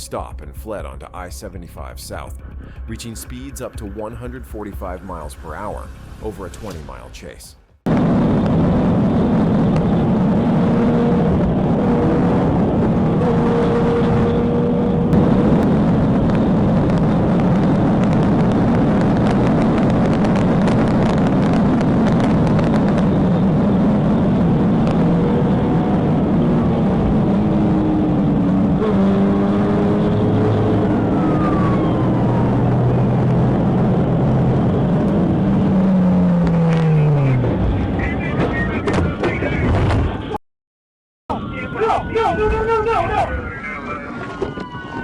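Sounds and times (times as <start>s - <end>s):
car engine at high speed: 7.9s - 39.0s
wind noise: 7.9s - 40.4s.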